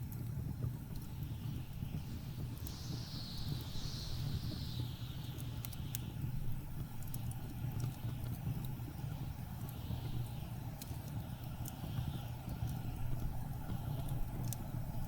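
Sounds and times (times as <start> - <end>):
blizzard wind rumble: 0.2 - 15.0
wind gust hissing: 0.6 - 7.7.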